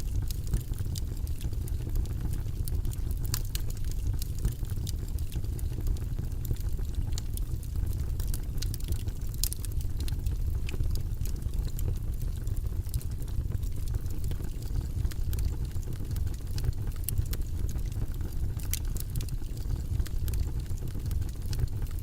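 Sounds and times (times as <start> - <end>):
low rumbling white noise: 0.0 - 22.0
light irregular clicks: 8.2 - 12.0.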